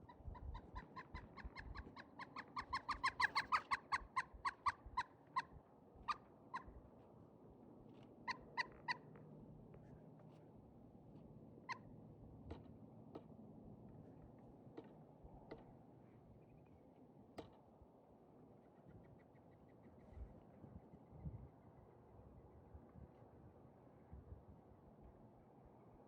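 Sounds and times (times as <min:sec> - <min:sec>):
woodpecker calling: 0:00.6 - 0:05.1.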